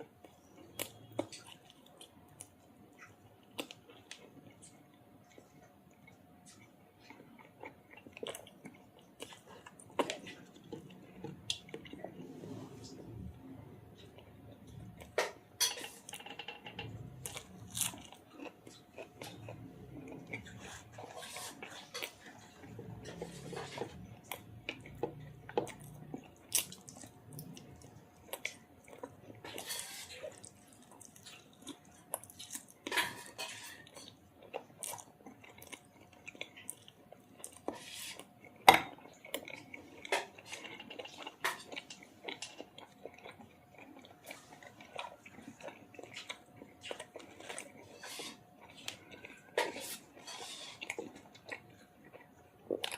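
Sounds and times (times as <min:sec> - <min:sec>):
chewing: 0:00.0 - 0:52.9
cutlery clinking and scraping plate: 0:15.2 - 0:16.9, 0:32.9 - 0:34.1.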